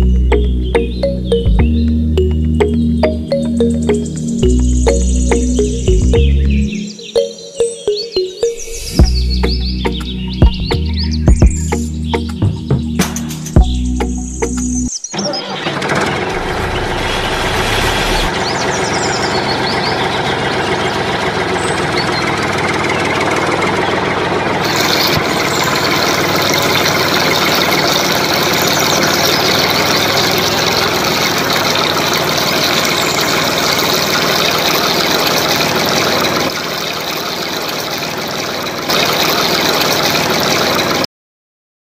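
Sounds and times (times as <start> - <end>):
engine running steadily: 0.0 - 7.0, 8.9 - 41.1.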